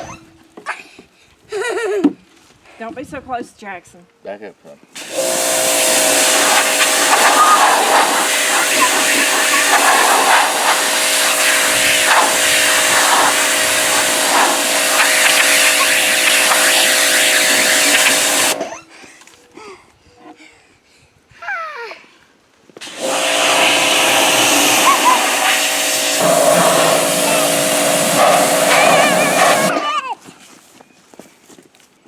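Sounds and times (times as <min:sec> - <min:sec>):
pump whine: 0:00.0 - 0:00.2, 0:05.0 - 0:18.9, 0:22.8 - 0:29.8
pressure washer spray hiss: 0:05.0 - 0:18.6, 0:22.8 - 0:29.7.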